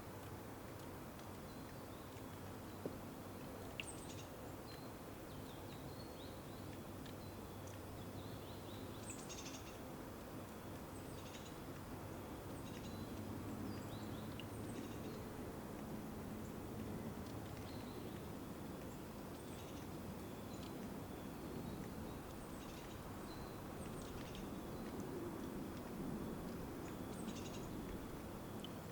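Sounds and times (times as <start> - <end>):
low outdoor background hum: 0.0 - 28.9
small birds chirping: 26.8 - 28.9.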